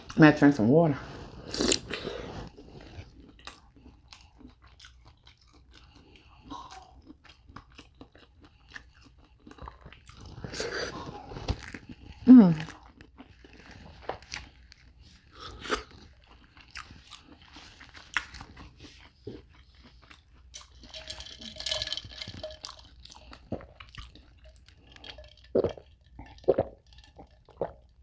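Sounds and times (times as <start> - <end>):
gulps of water: 21.0 - 28.0.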